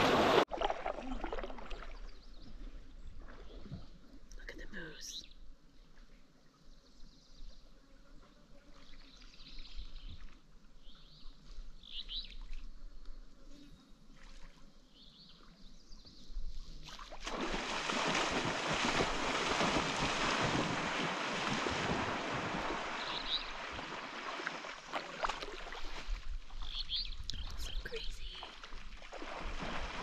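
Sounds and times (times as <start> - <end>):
faint high bird chirps: 26.6 - 28.6.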